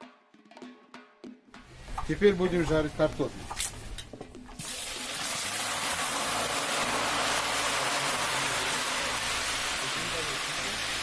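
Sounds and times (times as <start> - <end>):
potatoes sizzling in hot oil: 4.6 - 11.0.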